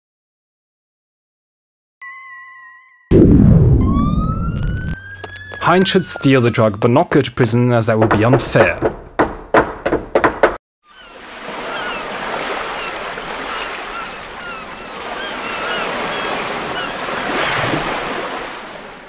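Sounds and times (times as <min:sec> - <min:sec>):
surf washing in: 0:11.1 - 0:19.0.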